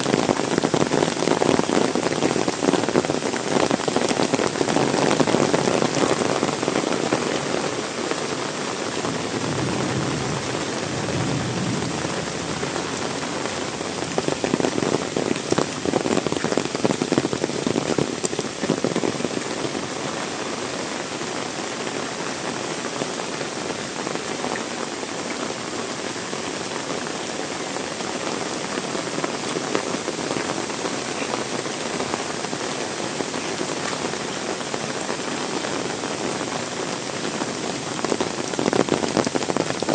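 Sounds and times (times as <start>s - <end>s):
heavy rain splashing: 0.0s - 39.9s.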